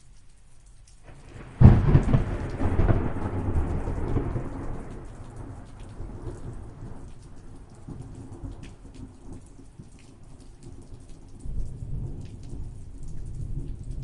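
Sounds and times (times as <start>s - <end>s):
steady rain: 0.0s - 14.0s
thunderclap rumbling: 1.1s - 9.1s.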